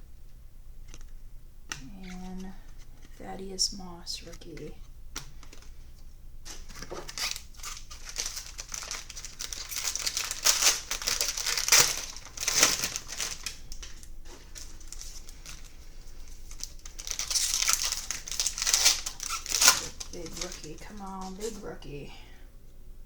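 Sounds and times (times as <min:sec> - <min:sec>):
plastic wrapper crinkling: 0:01.7 - 0:03.2, 0:06.4 - 0:22.0.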